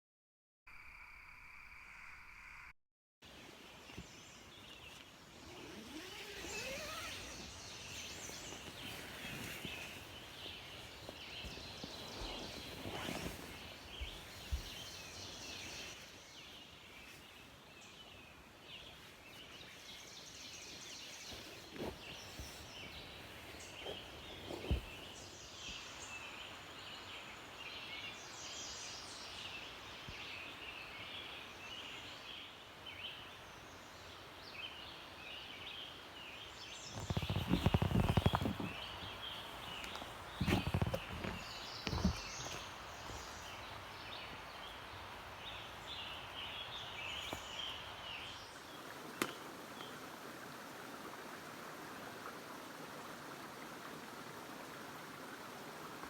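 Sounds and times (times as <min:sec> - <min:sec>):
birds singing: 0:03.9 - 0:33.2, 0:34.6 - 0:50.0
handling thumps: 0:37.0 - 0:43.3.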